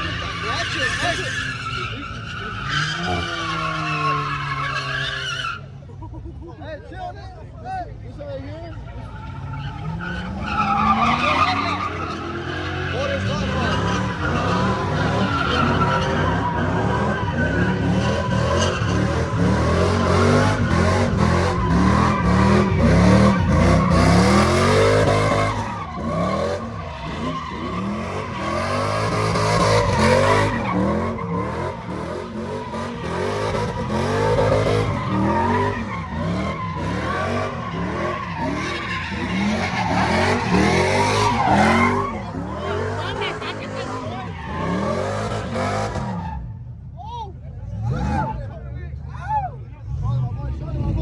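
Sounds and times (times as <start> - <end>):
tires screeching in a burnout: 0.0 - 51.0
truck engine revving: 8.8 - 46.9.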